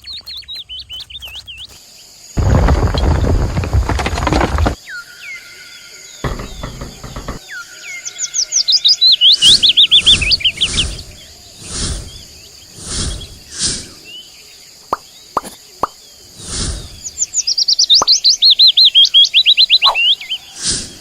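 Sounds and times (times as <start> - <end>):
birds chirping: 0.0 - 21.0
rustling bursts: 2.4 - 4.8.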